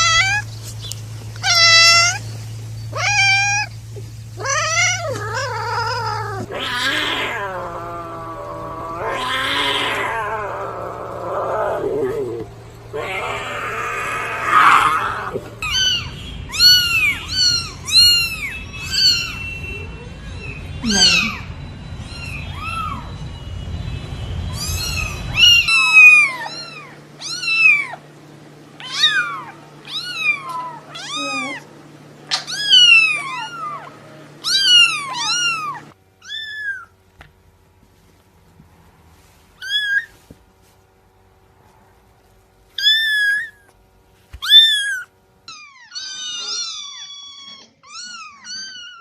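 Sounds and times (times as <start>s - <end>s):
cat meowing: 0.0s - 0.5s, 1.4s - 2.2s, 2.9s - 3.8s, 4.4s - 23.2s, 24.5s - 28.0s, 28.8s - 31.7s, 32.3s - 37.0s, 39.6s - 40.2s, 42.8s - 43.7s, 44.4s - 49.0s
background hum: 0.0s - 49.0s.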